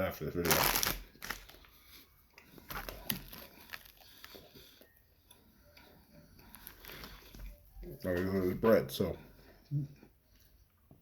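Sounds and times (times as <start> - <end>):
plastic wrapper rustling: 0.4 - 1.8, 2.6 - 4.4, 6.5 - 7.4
chewing soft bread: 0.9 - 8.4.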